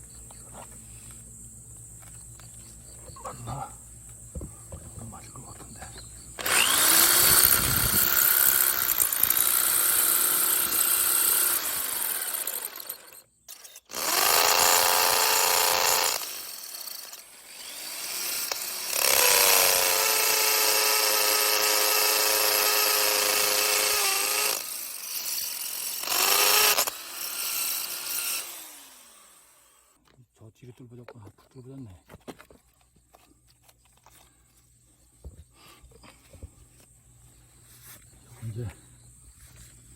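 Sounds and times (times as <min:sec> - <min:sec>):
electric drill boring stone: 0:06.4 - 0:30.0.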